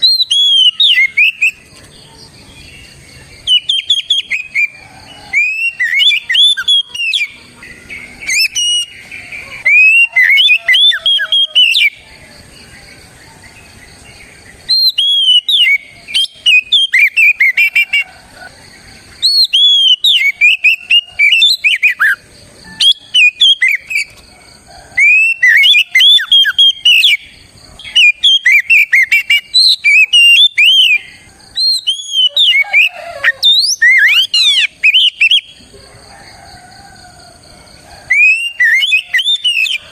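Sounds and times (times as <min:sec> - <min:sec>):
bird singing whistled phrases: 0:00.0 - 0:01.6, 0:03.4 - 0:07.4, 0:08.2 - 0:12.0, 0:14.6 - 0:18.0, 0:19.2 - 0:22.2, 0:22.8 - 0:24.1, 0:25.0 - 0:31.0, 0:31.6 - 0:35.6, 0:38.1 - 0:39.9.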